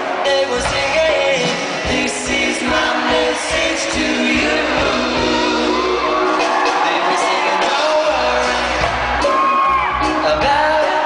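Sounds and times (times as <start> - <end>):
crowd whooping and shouting: 0.0 - 0.7, 5.2 - 11.0
person singing over a band: 0.0 - 11.0.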